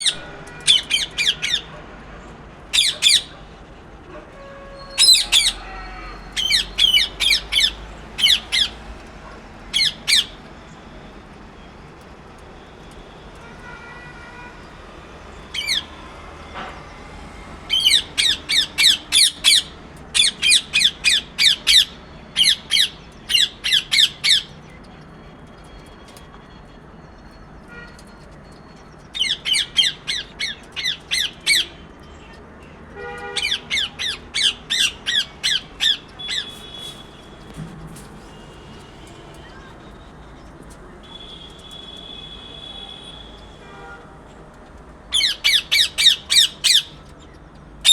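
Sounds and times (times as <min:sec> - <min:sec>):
parrot squawking: 0:00.0 - 0:01.7, 0:02.7 - 0:03.5, 0:04.8 - 0:08.8, 0:09.7 - 0:10.4, 0:15.5 - 0:15.9, 0:17.7 - 0:24.6, 0:29.2 - 0:31.8, 0:33.4 - 0:37.1, 0:45.1 - 0:47.0.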